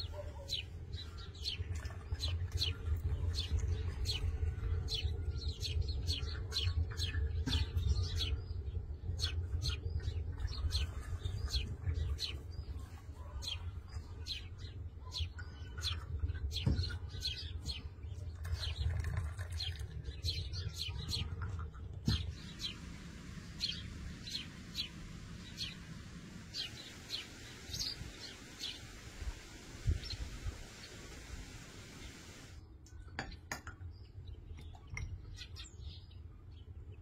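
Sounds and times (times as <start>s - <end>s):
small birds chirping: 0.0s - 37.0s
steady low rumble: 22.2s - 32.6s.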